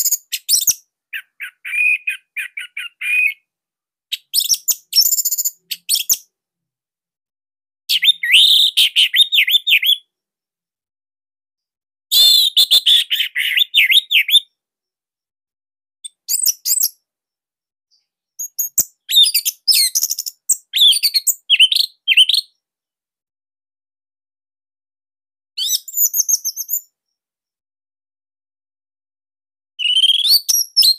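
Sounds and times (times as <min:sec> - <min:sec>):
bird singing whistled notes: 0:00.0 - 0:03.5, 0:04.1 - 0:06.3, 0:07.9 - 0:10.1, 0:12.1 - 0:14.6, 0:16.0 - 0:17.0, 0:18.4 - 0:22.6, 0:25.6 - 0:26.9, 0:29.8 - 0:30.9.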